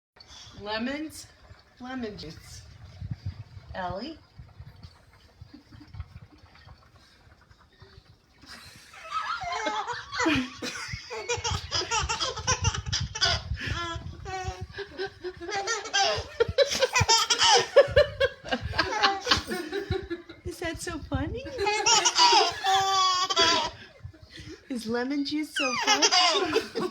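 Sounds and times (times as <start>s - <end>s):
little girl laughing hard: 9.0s - 20.0s, 21.6s - 23.8s, 25.7s - 26.9s.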